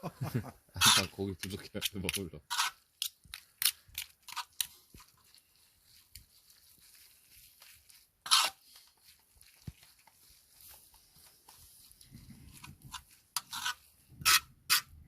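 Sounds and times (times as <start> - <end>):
spoon scraping a metal lid: 2.1 - 3.1, 8.2 - 8.6, 12.9 - 14.9.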